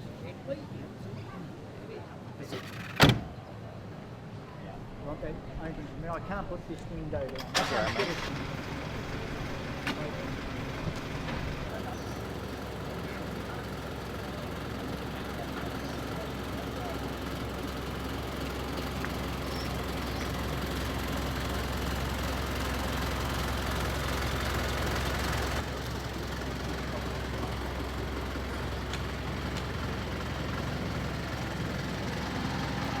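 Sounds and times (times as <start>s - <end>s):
road and wind noise: 0.0s - 33.0s
truck engine humming: 6.4s - 33.0s.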